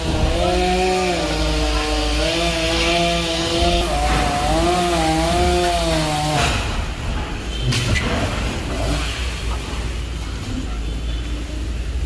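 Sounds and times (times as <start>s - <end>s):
chainsaw cutting wood: 0.0s - 6.8s.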